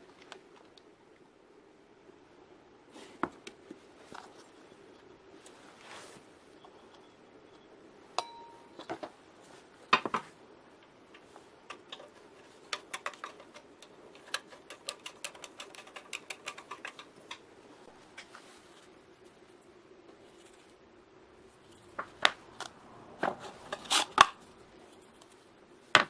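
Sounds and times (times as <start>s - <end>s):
metal strike ringing: 8.2s - 8.8s.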